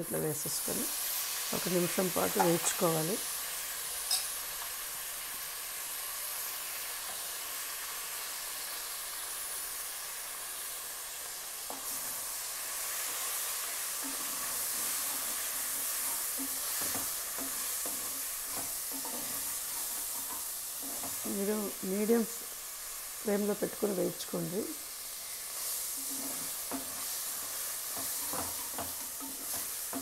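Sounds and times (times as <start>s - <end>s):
oil sizzling in a pot: 0.0s - 30.0s
wooden spatula scraping a pan: 11.6s - 21.8s, 25.3s - 30.0s.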